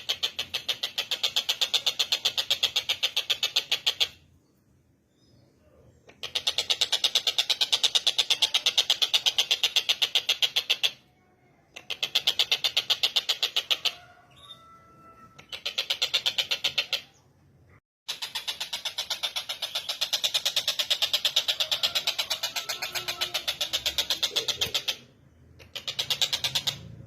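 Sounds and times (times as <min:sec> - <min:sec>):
kingfisher harsh chattering call: 0:18.1 - 0:26.8.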